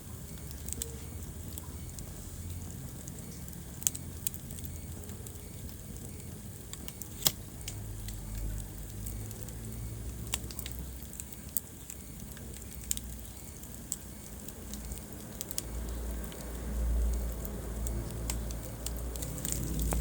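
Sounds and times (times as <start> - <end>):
rumble of flames: 0.0 - 20.0
wood fire crackling: 0.0 - 20.0.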